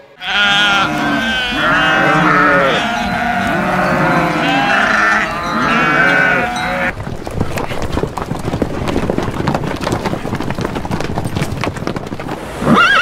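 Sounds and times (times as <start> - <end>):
goats bleating: 0.1 - 6.9.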